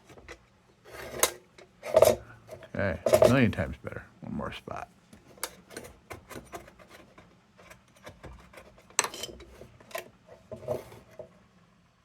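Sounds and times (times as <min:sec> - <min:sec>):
chopstick scraping and tapping metal: 0:05.4 - 0:11.0.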